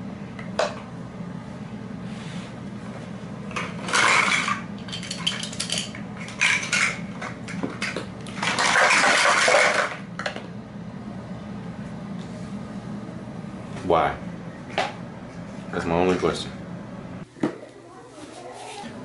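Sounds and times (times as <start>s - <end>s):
hard objects clattering: 3.5s - 10.4s.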